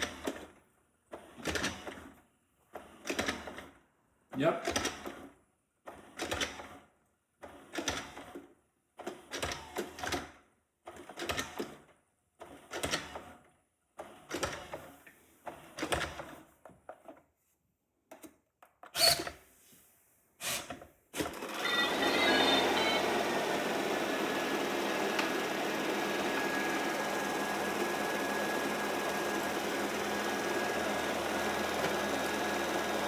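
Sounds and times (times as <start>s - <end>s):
robot vacuum clattering: 21.4s - 33.0s.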